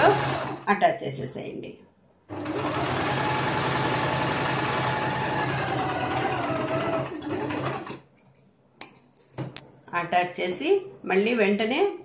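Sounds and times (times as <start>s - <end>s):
electric sewing machine running: 0.0s - 0.7s, 2.3s - 8.0s.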